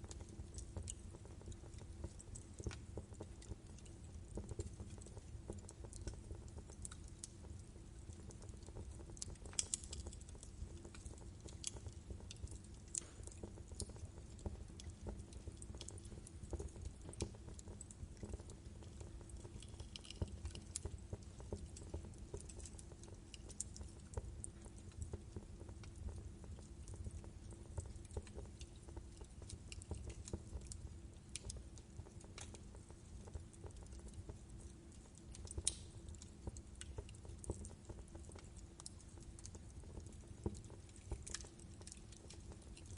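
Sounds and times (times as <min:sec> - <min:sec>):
wood fire crackling and popping: 0:00.0 - 0:42.9.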